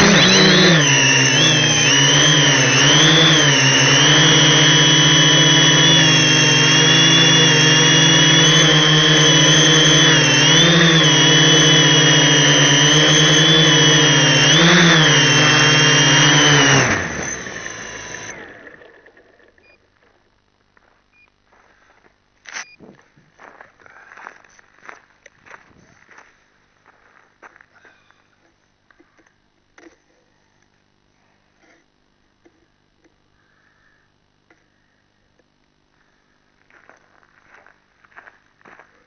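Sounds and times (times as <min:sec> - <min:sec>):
drone propellers whining: 0:00.0 - 0:19.8.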